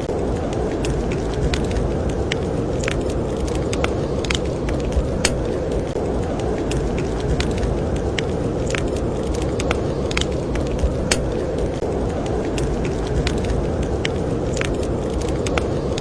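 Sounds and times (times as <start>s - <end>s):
blizzard wind rushing: 0.0s - 16.0s
wood fire crackling and popping: 0.0s - 16.0s.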